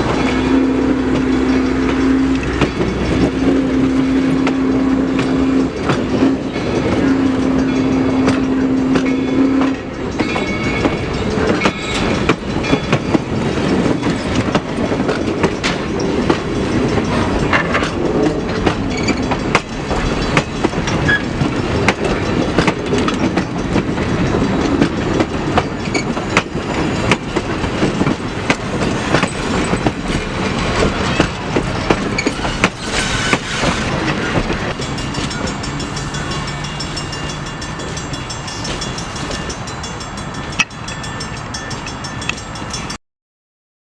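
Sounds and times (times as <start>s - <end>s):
train rumble: 0.0s - 43.0s
train wheels clicking over rails: 0.0s - 43.0s
train whistle: 0.3s - 1.4s.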